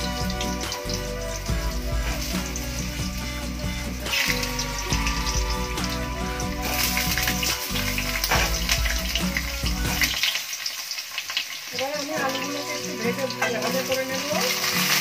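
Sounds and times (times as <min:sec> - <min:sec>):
low background music: 0:00.0 - 0:10.6
potatoes sizzling in hot oil: 0:00.0 - 0:15.0.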